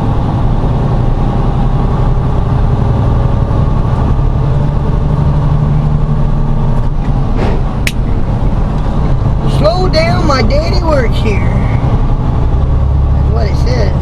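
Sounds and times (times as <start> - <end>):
diesel truck engine running: 0.0 - 14.0
sharp click: 7.4 - 8.0.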